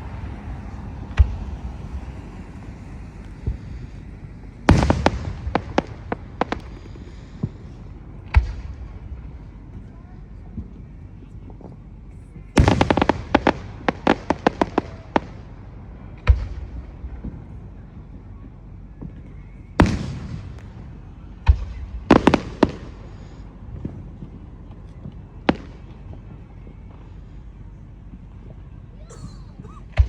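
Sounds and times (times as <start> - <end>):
fireworks booming: 0.0 - 9.8, 12.4 - 18.3, 19.0 - 27.3
fireworks cracking: 0.0 - 9.8, 12.4 - 17.5, 19.0 - 27.4.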